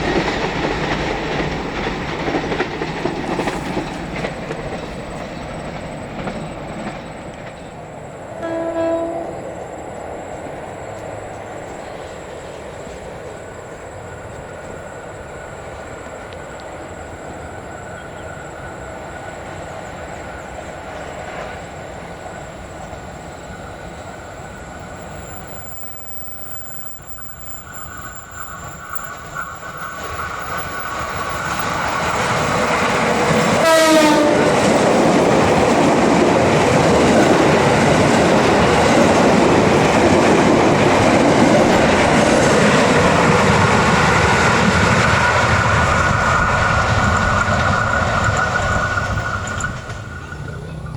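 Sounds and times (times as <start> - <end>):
train rumbling on track: 0.0 - 50.9
train horn blast: 8.4 - 9.6, 33.5 - 34.8.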